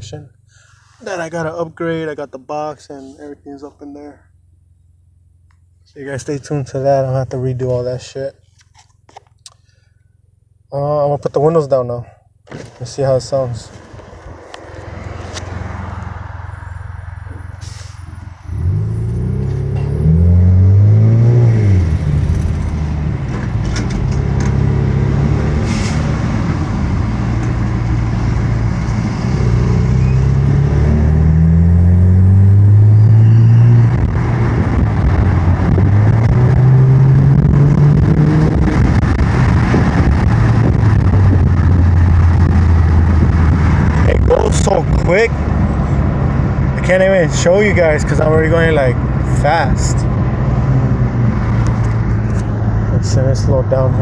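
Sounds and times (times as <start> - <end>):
road and wind noise: 0.0 - 54.0
car engine accelerating and upshifting: 13.7 - 54.0.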